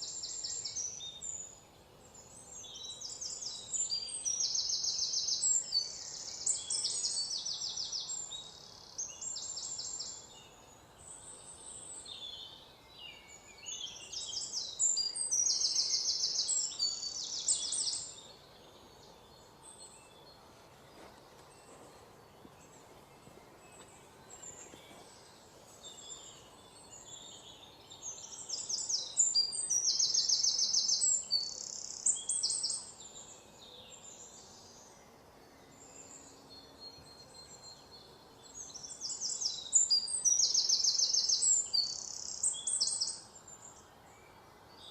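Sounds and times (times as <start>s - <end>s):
songbirds chirping and trilling: 0.0s - 44.9s.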